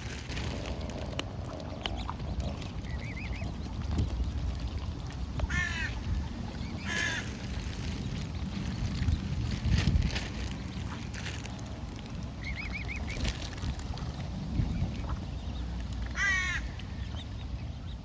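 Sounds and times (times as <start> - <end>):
steady low rumble: 0.0 - 18.0
bird calling harshly: 6.8 - 7.3, 16.2 - 16.7.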